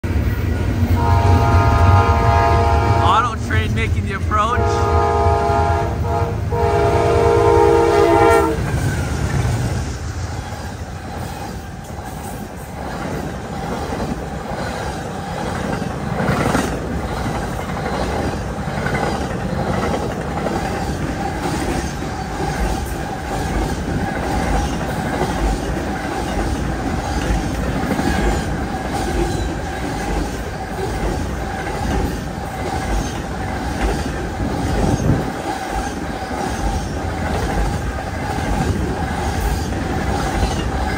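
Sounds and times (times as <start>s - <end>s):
train cars rumbling and clattering: 0.0s - 40.9s
locomotive horn chord: 1.0s - 8.6s.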